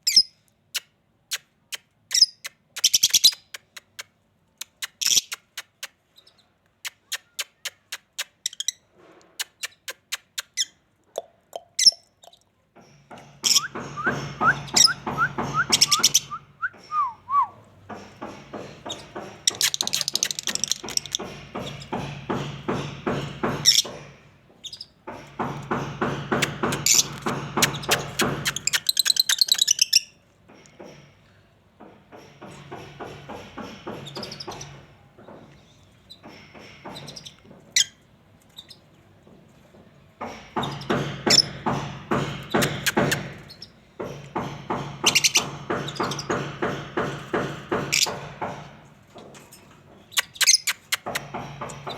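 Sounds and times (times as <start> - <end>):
small parrots chirping and chattering: 0.0 - 12.5, 13.2 - 17.2, 17.9 - 22.5, 23.6 - 24.0, 24.6 - 30.2, 32.5 - 34.8, 42.4 - 43.8, 45.0 - 46.4, 47.8 - 48.3, 50.0 - 51.9.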